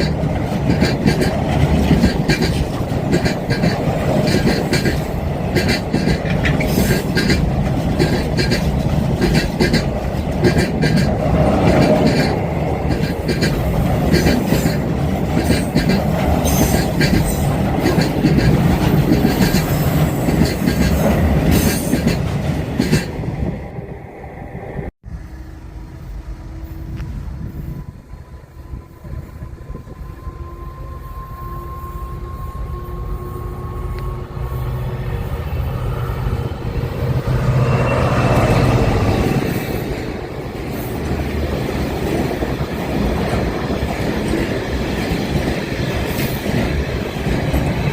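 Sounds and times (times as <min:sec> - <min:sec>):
train wheels clicking over rail joints: 0:00.0 - 0:23.2
train passing rumble: 0:00.0 - 0:47.9.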